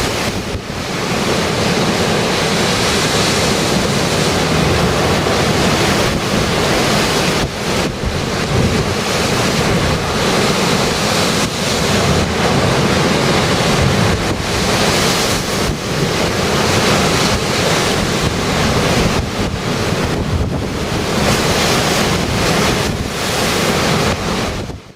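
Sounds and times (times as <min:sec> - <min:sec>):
surf crashing: 0:00.0 - 0:24.9
wind buffeting microphone: 0:00.0 - 0:24.9.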